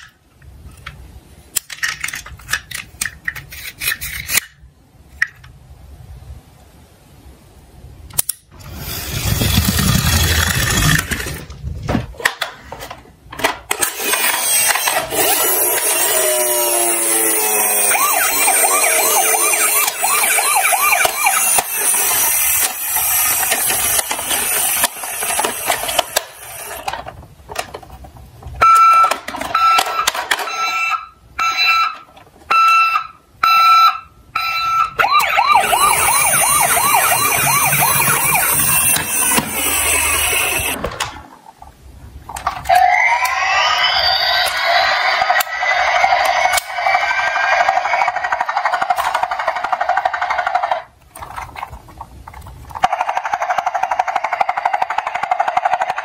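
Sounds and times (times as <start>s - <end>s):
toy electronic sirens wailing: 13.9s - 26.9s, 28.6s - 40.8s, 42.7s - 50.8s
high beeping tone: 16.1s - 22.6s, 32.6s - 40.8s.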